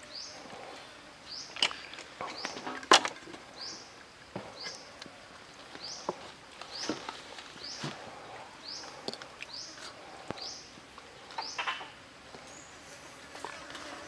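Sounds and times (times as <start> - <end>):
bird chirping: 0.0 - 0.7, 1.3 - 2.8, 3.4 - 5.0, 5.7 - 12.8
leaves rustling and crinkling: 0.0 - 14.0.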